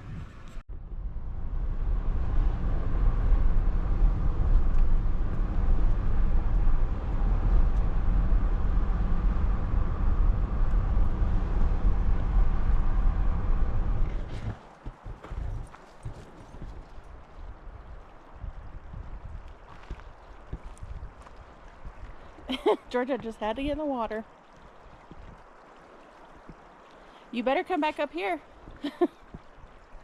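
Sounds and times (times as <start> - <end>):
vehicle driving rumble: 0.0 - 21.3.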